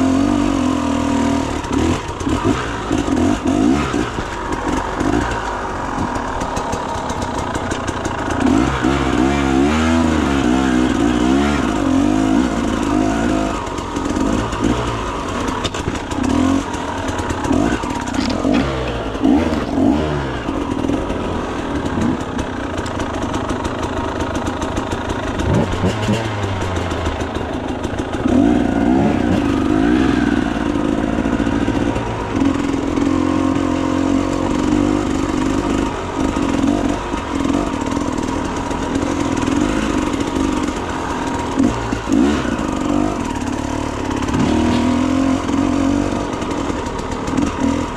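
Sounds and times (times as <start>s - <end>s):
motorcycle engine revving: 0.0s - 47.9s
sharp knocks and clatter: 14.0s - 30.0s.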